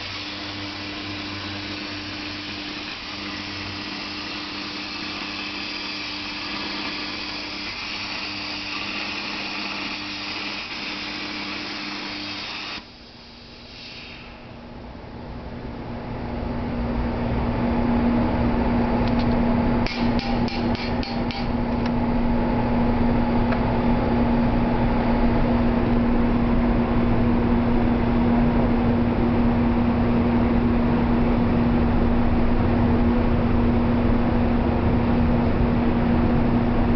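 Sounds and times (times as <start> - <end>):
plasma cutter buzzing and hissing: 0.0 - 14.6.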